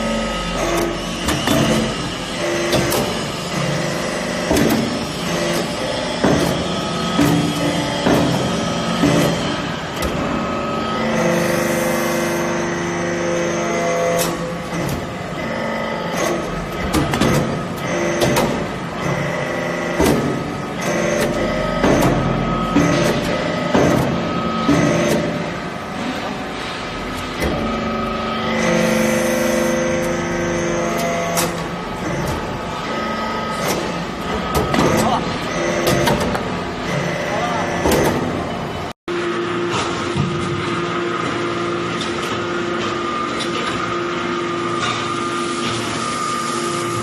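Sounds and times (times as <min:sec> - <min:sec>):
machine hum and whine: 0:00.0 - 0:47.0.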